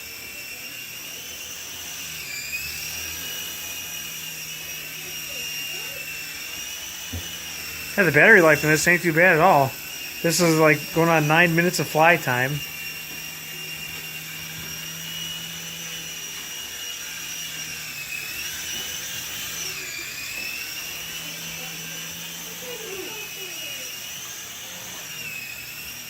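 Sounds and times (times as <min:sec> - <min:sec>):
toy helicopter whining: 0:00.0 - 0:26.0.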